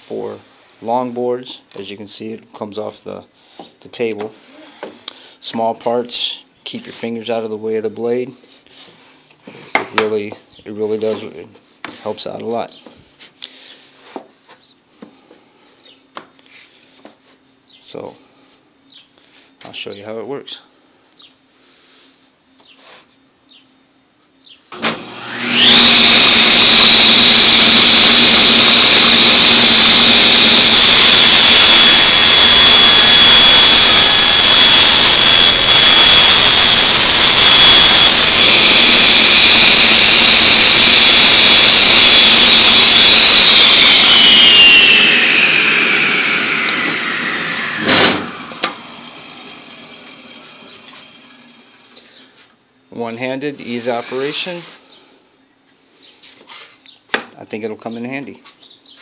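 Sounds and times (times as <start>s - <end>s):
table saw whining: 24.7s - 52.0s.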